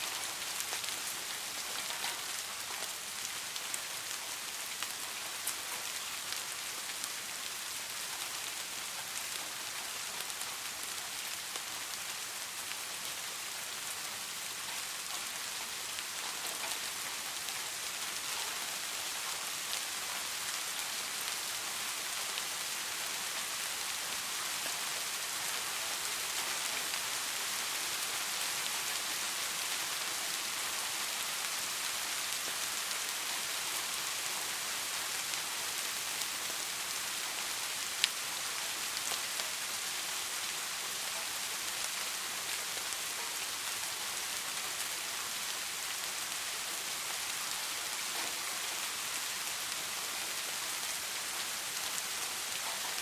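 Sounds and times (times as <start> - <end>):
rain hissing on a surface: 0.0 - 53.0
rain drop ticks: 0.1 - 8.4, 14.6 - 22.5, 35.3 - 42.0.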